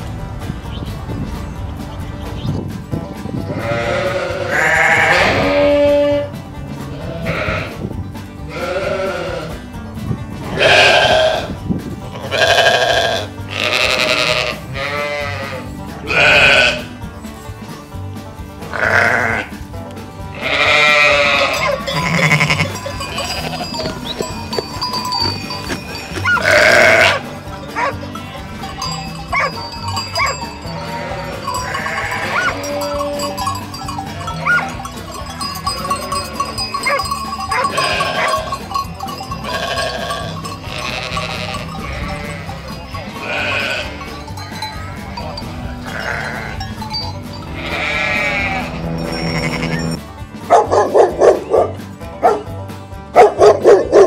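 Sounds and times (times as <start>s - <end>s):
sheep bleating: 3.5s - 7.8s, 8.5s - 9.6s, 10.4s - 17.0s, 18.6s - 19.6s, 20.3s - 46.8s, 47.4s - 50.0s.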